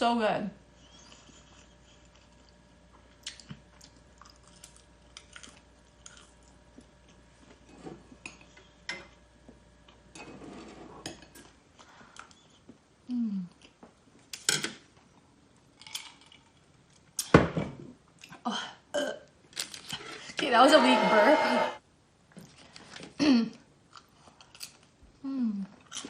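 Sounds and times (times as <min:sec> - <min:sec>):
crunchy chewing: 0:01.1 - 0:07.2.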